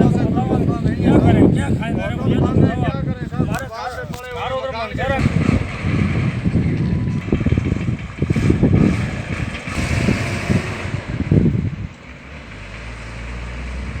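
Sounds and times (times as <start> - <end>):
road vehicle noise: 0.0 - 14.0
wind buffeting microphone: 0.0 - 14.0
low engine hum: 4.3 - 14.0.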